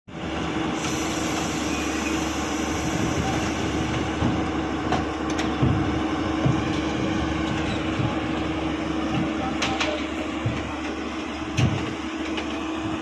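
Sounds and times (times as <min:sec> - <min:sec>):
diesel engine running: 0:00.1 - 0:13.0.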